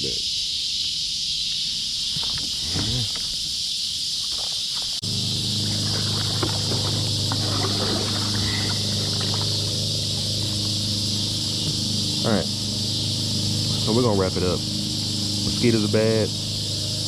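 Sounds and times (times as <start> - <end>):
insects chirring: 0.0 - 17.0
low mechanical hum: 5.0 - 17.0.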